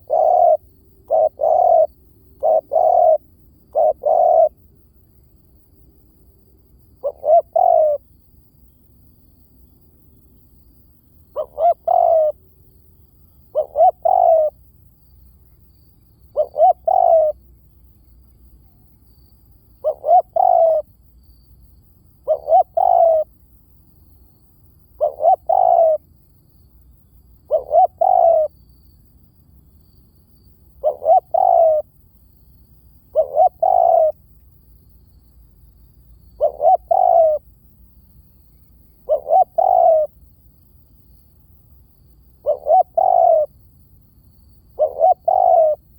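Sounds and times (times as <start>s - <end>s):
dove cooing: 0.0s - 4.6s, 7.0s - 8.0s, 11.3s - 12.4s, 13.5s - 14.6s, 16.3s - 17.4s, 19.8s - 20.9s, 22.2s - 23.3s, 25.0s - 26.0s, 27.4s - 28.6s, 30.8s - 31.9s, 33.1s - 34.2s, 36.2s - 37.5s, 38.9s - 40.1s, 42.4s - 43.5s, 44.8s - 45.9s.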